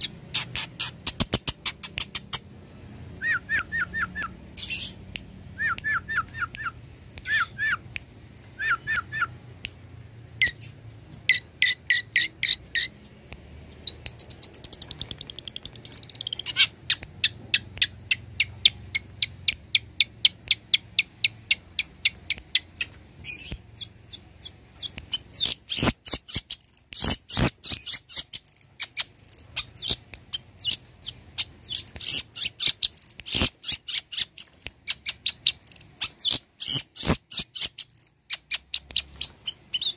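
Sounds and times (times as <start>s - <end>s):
bird singing: 10.4s - 39.9s.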